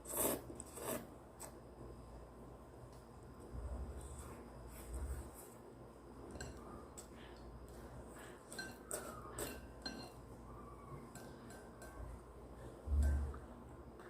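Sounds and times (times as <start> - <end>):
faint ringing: 4.9 - 14.0
cutlery clinking against dishes: 8.5 - 10.2.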